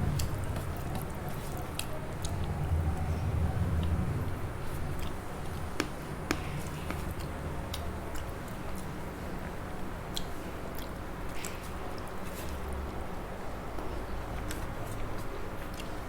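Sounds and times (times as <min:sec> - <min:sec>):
low steady hum: 0:00.0 - 0:09.8.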